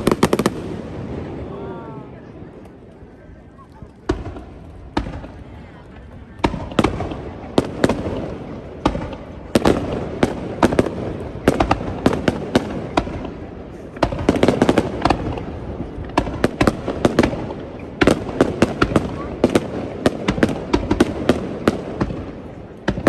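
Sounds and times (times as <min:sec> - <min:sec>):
fireworks bangs: 0:00.0 - 0:23.0.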